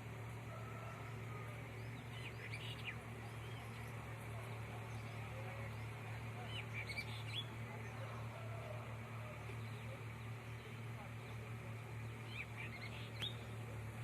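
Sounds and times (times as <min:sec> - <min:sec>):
songbirds chirping: 0:00.0 - 0:14.0
steady low hum: 0:00.0 - 0:14.0.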